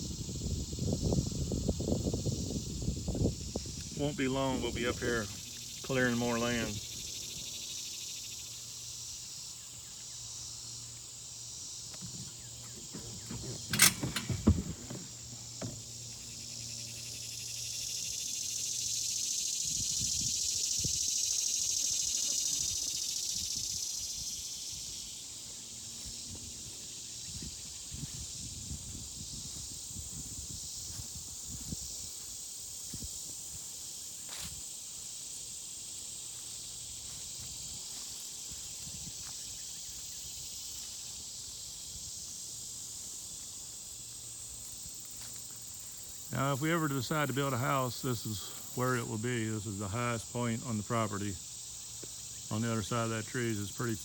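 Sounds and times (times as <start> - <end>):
cicadas buzzing: 0.0 - 54.0
faint rustles and knocks: 11.9 - 16.0.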